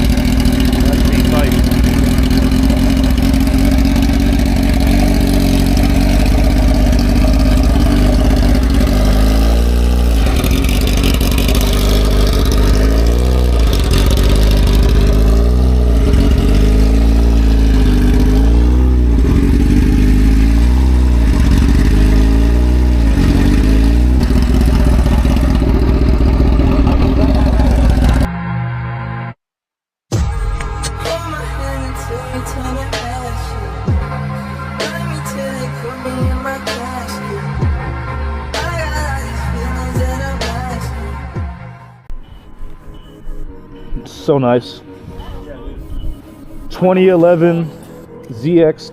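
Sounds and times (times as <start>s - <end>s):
motorcycle engine revving: 0.0s - 29.4s.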